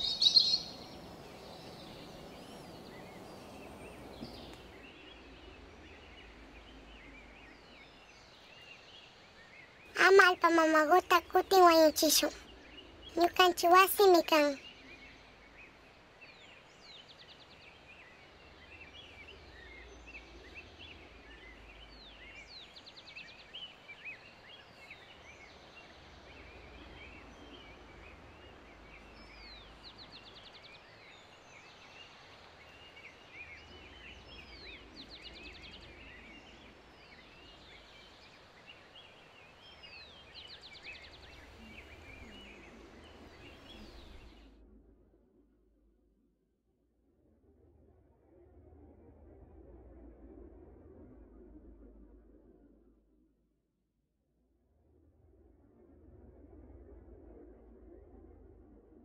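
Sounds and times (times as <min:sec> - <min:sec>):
bird call with fast trill: 0:00.0 - 0:00.7
small birds chirping: 0:00.0 - 0:44.5.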